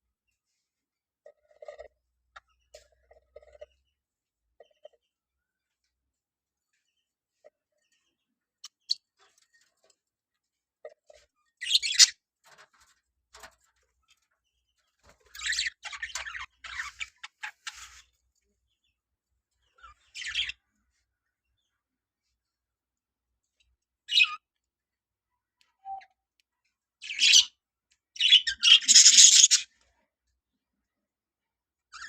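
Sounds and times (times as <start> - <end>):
budgerigars chirping: 28.2 - 29.6.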